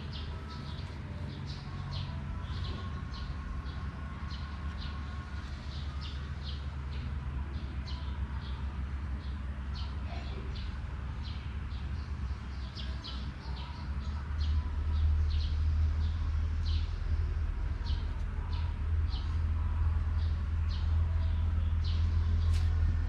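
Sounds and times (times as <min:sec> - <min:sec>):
small birds chirping: 0:00.0 - 0:22.9
steady low hum: 0:00.0 - 0:23.0.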